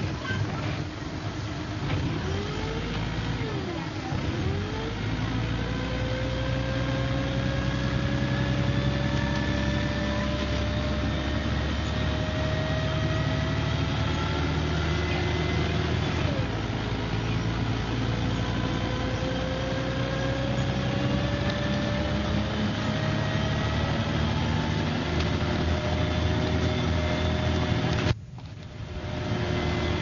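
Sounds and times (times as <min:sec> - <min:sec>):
bus engine drone: 0:00.0 - 0:30.0
transmission whine: 0:00.0 - 0:30.0.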